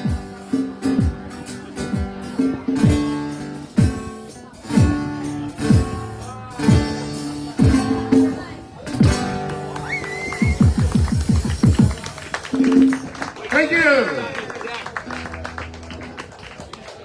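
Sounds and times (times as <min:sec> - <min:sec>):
strummed acoustic guitar: 0:00.0 - 0:11.9.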